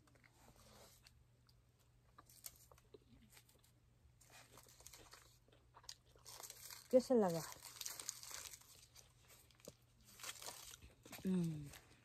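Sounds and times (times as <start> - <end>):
chewing and biting food: 4.3 - 6.6.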